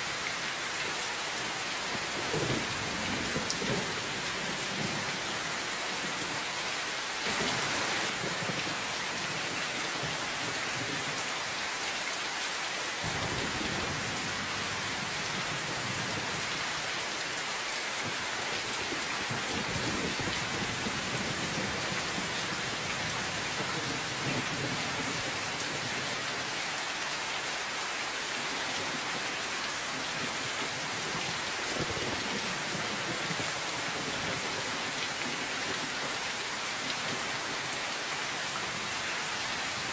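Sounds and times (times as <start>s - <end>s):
dense rain hissing: 0.0s - 39.9s
thunder rumbling: 13.0s - 16.3s.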